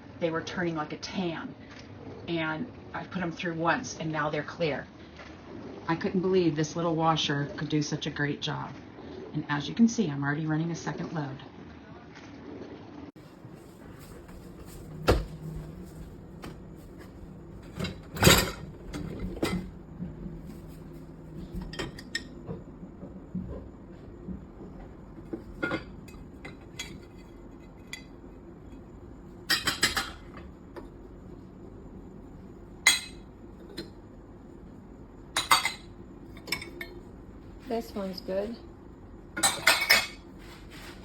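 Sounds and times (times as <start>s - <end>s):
low steady hum: 13.1s - 41.0s
dishes and cutlery clinking: 13.4s - 22.7s, 25.2s - 31.0s, 32.8s - 34.0s, 35.3s - 37.1s, 39.4s - 41.0s.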